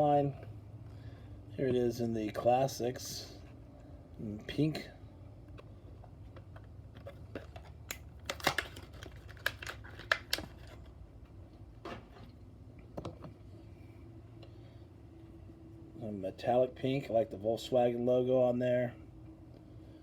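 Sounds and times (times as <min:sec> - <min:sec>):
low steady hum: 0:00.0 - 0:20.0
plastic blister pack crinkling: 0:07.2 - 0:10.9.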